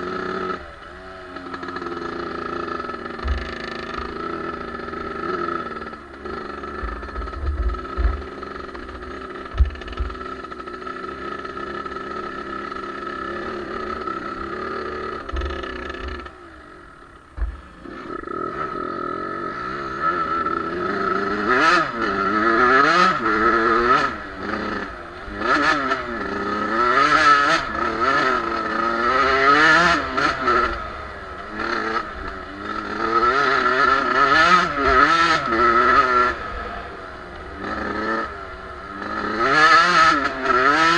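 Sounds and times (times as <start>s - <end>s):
motocross bike engine revving: 0.0s - 40.9s
low thumps: 3.2s - 4.2s.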